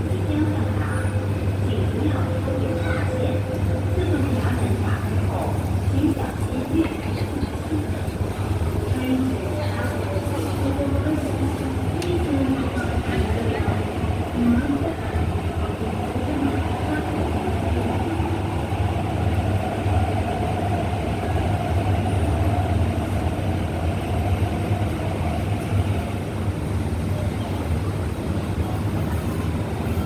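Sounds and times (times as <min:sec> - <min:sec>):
train low rumble: 0:00.0 - 0:30.0.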